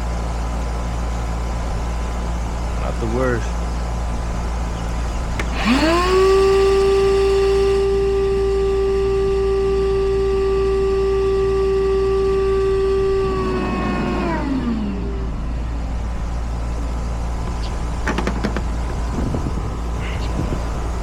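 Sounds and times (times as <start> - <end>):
electric motor whining: 5.4 - 20.0.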